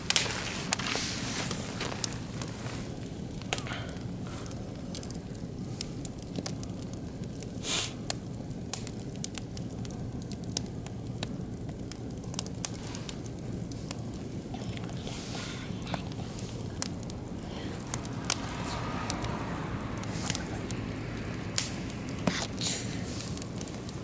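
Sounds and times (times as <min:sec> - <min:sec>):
wood fire crackling: 0:00.0 - 0:24.0
short hiss: 0:07.6 - 0:08.0.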